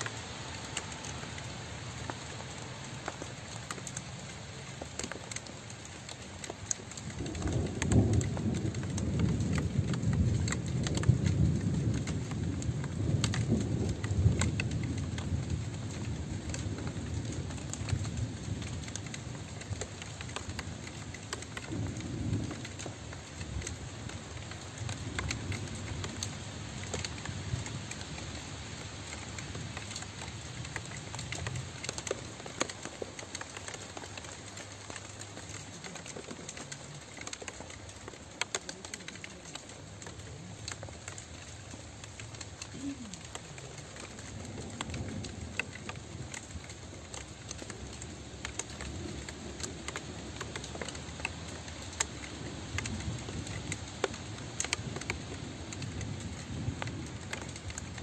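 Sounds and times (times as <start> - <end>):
rain drops clicking: 0.0 - 58.0
thunder rumble: 6.9 - 28.3.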